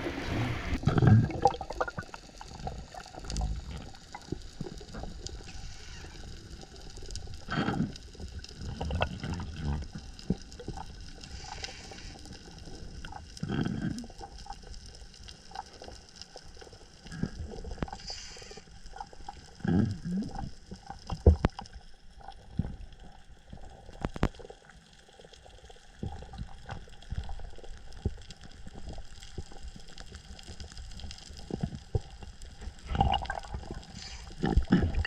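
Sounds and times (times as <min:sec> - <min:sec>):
low underwater splashes: 0:00.0 - 0:03.9, 0:32.8 - 0:35.0
muffled water sloshing and gurgling: 0:00.0 - 0:35.0.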